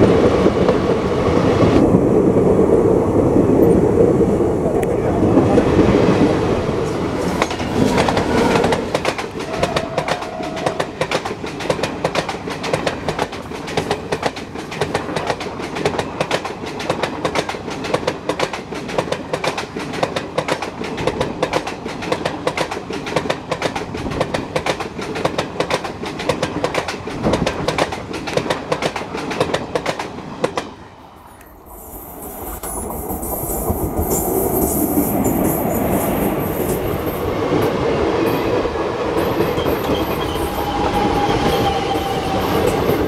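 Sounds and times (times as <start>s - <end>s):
train wheels clattering: 6.8s - 30.7s.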